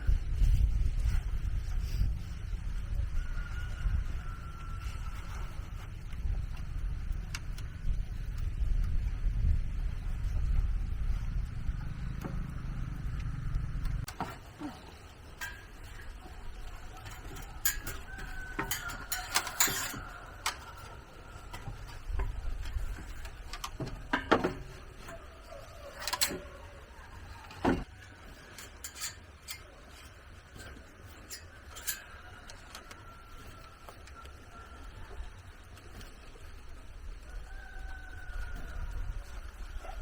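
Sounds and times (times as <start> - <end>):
faint low rumble: 0.0 - 17.5.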